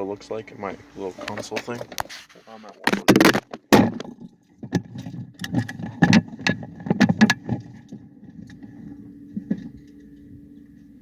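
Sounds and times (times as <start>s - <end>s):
steady low hum: 0.0s - 11.0s
clicks and rattles inside a car: 1.1s - 2.1s, 2.7s - 10.0s.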